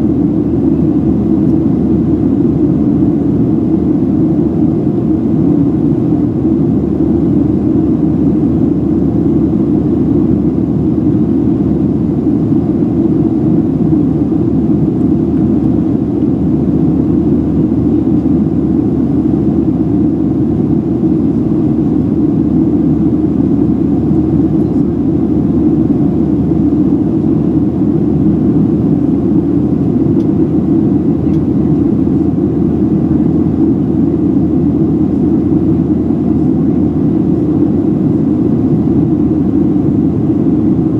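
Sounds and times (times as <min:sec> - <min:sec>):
airplane cabin roar: 0:00.0 - 0:40.9.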